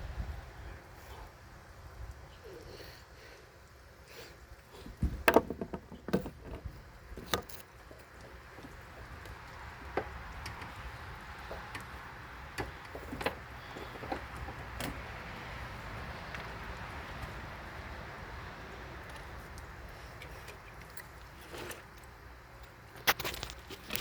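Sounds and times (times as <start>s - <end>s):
low background noise: 0.0s - 24.0s
knocks of hard objects handled: 5.0s - 7.5s.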